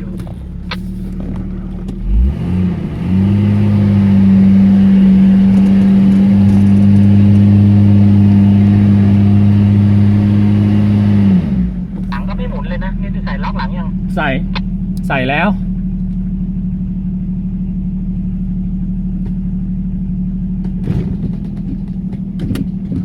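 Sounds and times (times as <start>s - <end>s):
off-road engine revving: 0.0s - 23.0s.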